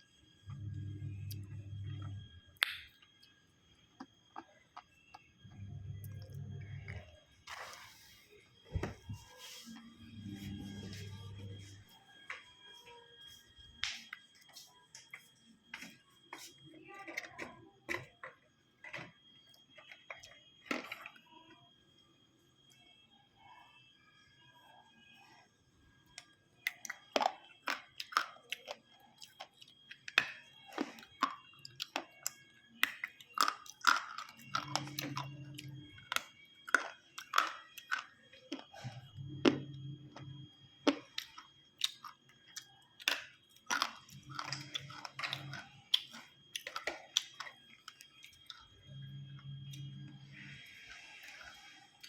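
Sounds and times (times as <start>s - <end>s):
low hums: 0.4s - 2.5s, 5.4s - 12.6s, 38.7s - 40.8s
chewing and crunching food: 0.4s - 21.7s, 24.7s - 52.0s.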